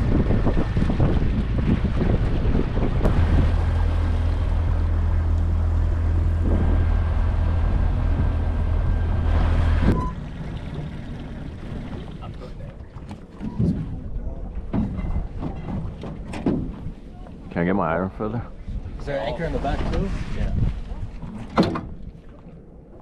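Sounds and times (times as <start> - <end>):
outboard motor humming: 0.0 - 14.0
wind buffeting microphone: 0.0 - 23.0.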